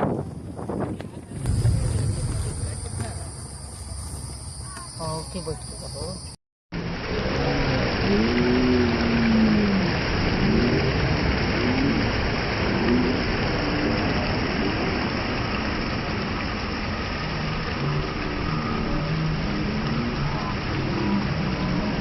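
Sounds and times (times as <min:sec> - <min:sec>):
waterfall roaring: 0:06.8 - 0:22.0.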